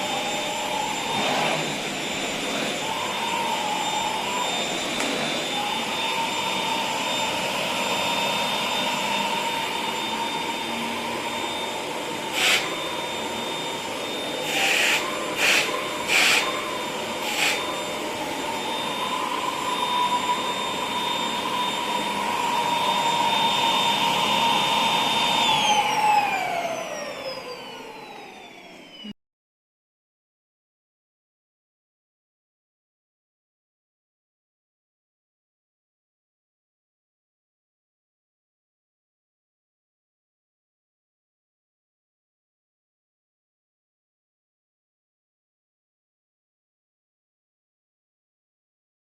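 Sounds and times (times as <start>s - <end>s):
vacuum cleaner whining: 0.0s - 29.2s.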